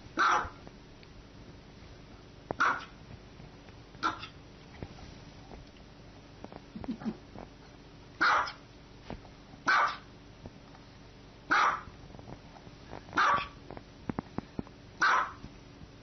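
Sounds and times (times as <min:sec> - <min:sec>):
dog barking: 0:00.2 - 0:00.6, 0:02.6 - 0:03.0, 0:04.0 - 0:04.4, 0:08.2 - 0:08.6, 0:09.7 - 0:10.1, 0:11.5 - 0:11.9, 0:13.2 - 0:13.6, 0:15.0 - 0:15.4.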